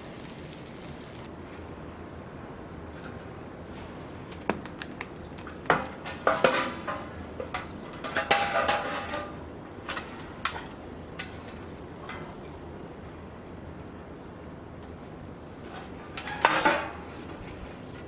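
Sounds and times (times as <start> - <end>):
metal clinking and clattering: 5.4 - 12.5, 15.7 - 18.0.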